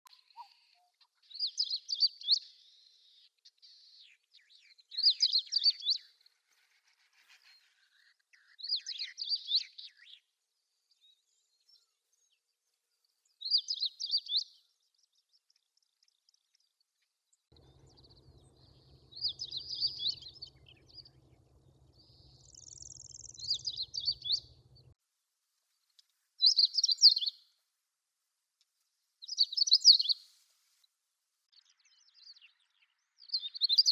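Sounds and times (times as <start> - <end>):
finch singing warbled phrases: 18.2 - 24.7, 26.4 - 27.4.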